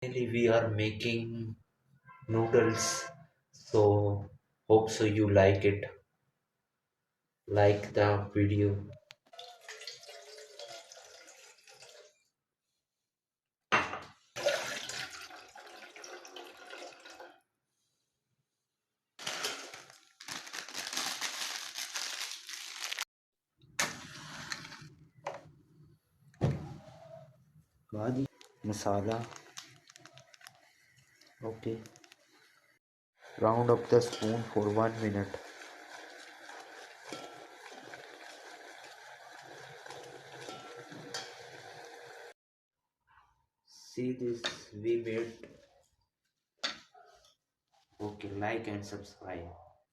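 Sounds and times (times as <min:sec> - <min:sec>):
water running and splashing: 0:09.3 - 0:12.2, 0:14.4 - 0:17.3, 0:33.2 - 0:42.3
noodles simmering in a pan: 0:32.2 - 0:42.3.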